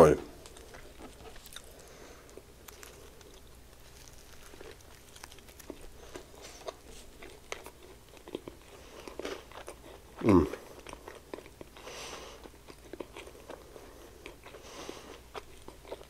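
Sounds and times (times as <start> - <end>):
chewing with wet mouth clicks: 0.4 - 11.8, 12.4 - 16.0
bite into sandwich: 0.5 - 11.8.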